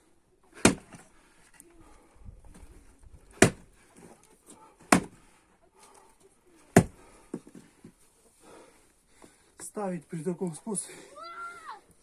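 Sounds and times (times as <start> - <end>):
maul chopping wood: 0.6 - 1.0, 3.3 - 3.7, 4.8 - 5.2, 6.7 - 7.0.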